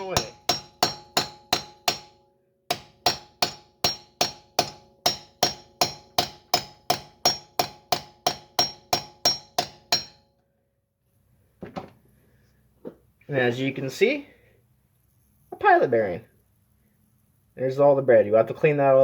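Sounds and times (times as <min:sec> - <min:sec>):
hammer striking metal socket: 0:00.0 - 0:10.2.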